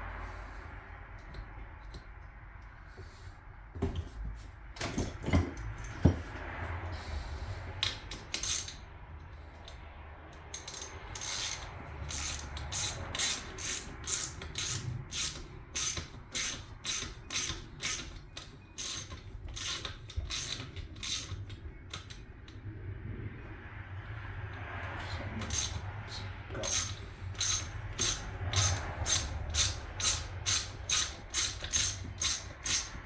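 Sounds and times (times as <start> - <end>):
ratchet wrench clicking: 7.8 - 8.8, 9.6 - 22.2, 25.1 - 33.0.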